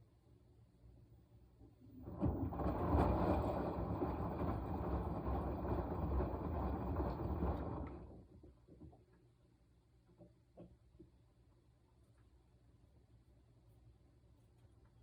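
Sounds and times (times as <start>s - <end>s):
washing machine drum churning: 1.8s - 8.9s.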